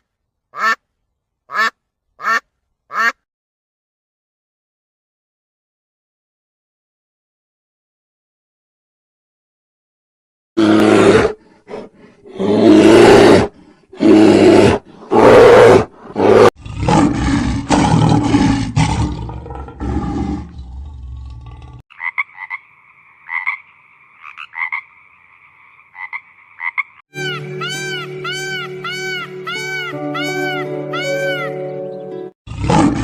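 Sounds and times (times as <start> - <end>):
big cat roaring: 10.6 - 21.8, 32.5 - 33.0
low growl: 10.6 - 21.8, 32.5 - 33.0
high chirping calls: 26.6 - 32.3
music: 27.1 - 32.4.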